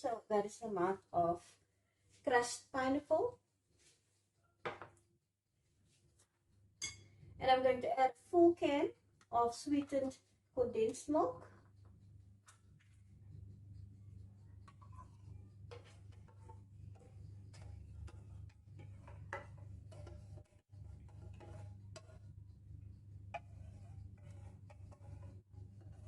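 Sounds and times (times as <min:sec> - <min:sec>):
steady low hum: 0:11.4 - 0:26.0.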